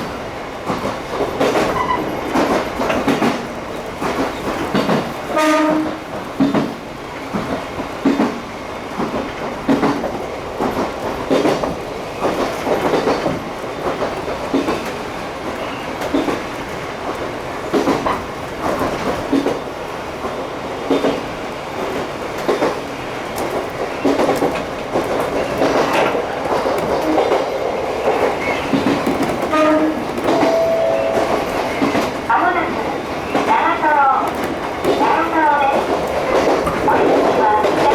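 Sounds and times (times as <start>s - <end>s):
train running noise: 0.0s - 37.9s
train horn blast: 5.3s - 6.0s, 29.5s - 31.8s
wheels clicking over rail joints: 9.0s - 30.6s
brief pitched tones: 30.3s - 31.6s.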